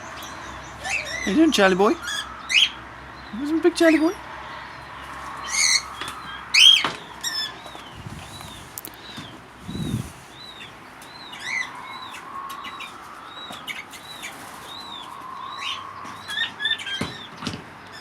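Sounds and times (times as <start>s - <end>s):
birds chirping: 0.0s - 18.0s
quail calling: 0.7s - 3.6s, 5.0s - 7.8s.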